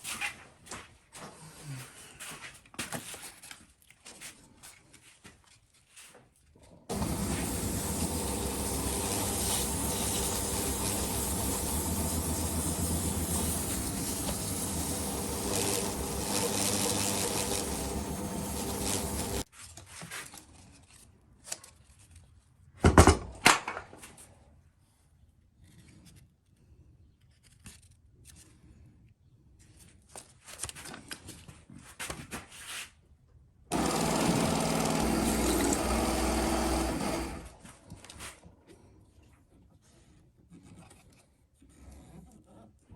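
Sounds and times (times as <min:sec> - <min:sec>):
small electric motor running: 0:06.9 - 0:19.5, 0:33.7 - 0:37.6.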